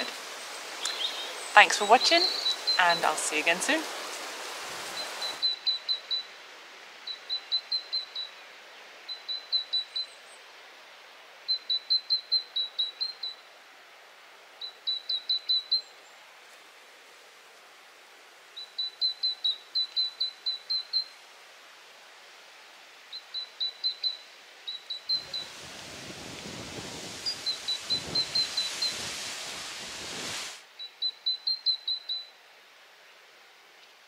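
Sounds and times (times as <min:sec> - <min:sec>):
songbird singing: 0:00.0 - 0:06.3, 0:07.0 - 0:10.5, 0:11.4 - 0:13.5, 0:14.6 - 0:16.2, 0:18.5 - 0:21.2, 0:23.1 - 0:29.2, 0:30.8 - 0:32.4
faint breeze hiss: 0:00.0 - 0:34.0.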